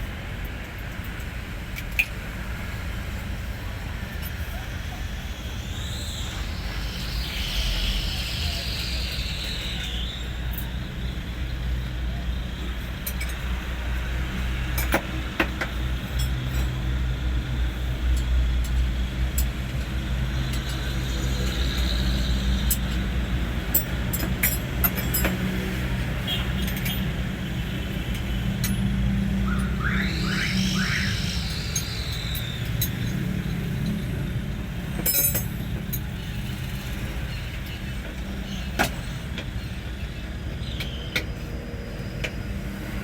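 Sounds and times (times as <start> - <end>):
tools clinking on metal: 14.8 - 16.8, 23.7 - 25.5, 26.6 - 27.2, 28.1 - 28.9, 35.0 - 36.2.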